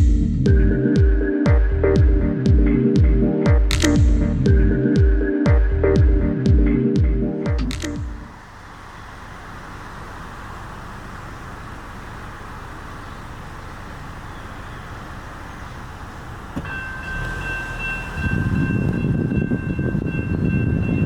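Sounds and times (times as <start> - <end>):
train passing rumble: 8.1 - 21.0
high two-pitch whine: 16.6 - 21.0.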